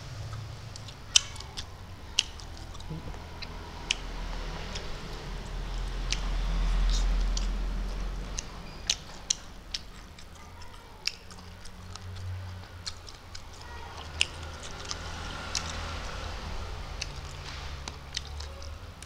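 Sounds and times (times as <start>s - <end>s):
person chewing food: 0.1s - 19.0s
wet mouth clicks and lip smacks: 5.7s - 15.8s.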